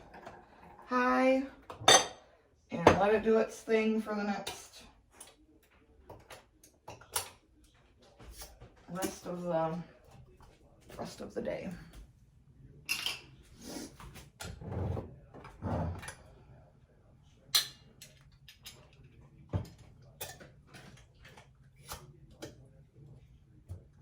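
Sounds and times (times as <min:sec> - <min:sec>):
clicks and knocks of kitchen items: 0:06.0 - 0:09.3, 0:17.6 - 0:22.7.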